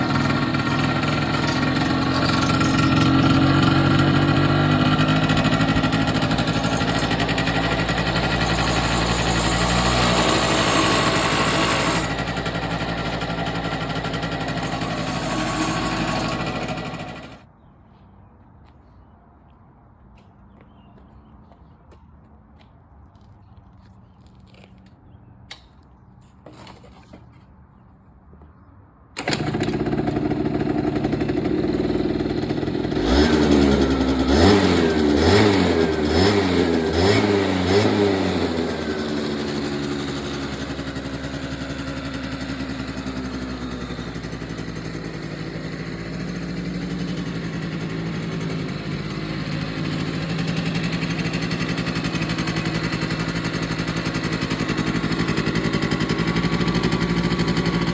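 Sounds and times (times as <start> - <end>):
scooter engine revving and idling: 0.0 - 17.5, 29.2 - 57.9.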